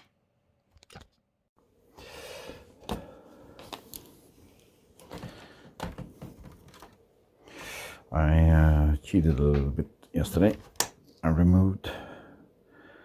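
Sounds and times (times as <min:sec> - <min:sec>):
rustling handling noise: 0:02.5 - 0:07.7.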